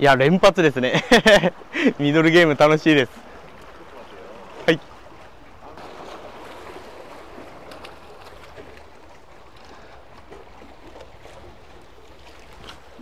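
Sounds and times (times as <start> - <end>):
sea water lapping among blocks: 0.1 - 13.0.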